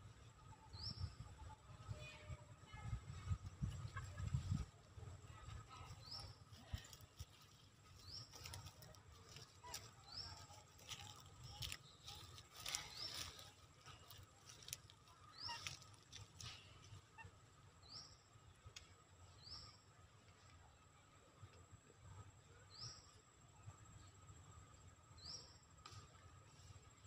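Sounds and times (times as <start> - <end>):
bird chirping: 5.7 - 18.3.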